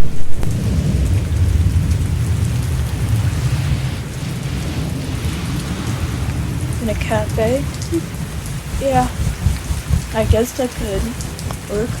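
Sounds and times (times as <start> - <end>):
rolling thunder: 0.0 - 12.0
steady rain: 0.0 - 12.0.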